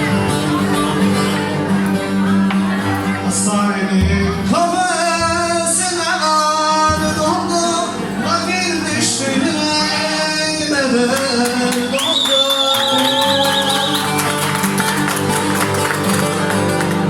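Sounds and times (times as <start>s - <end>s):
instrumental accompaniment: 13.2s - 17.0s.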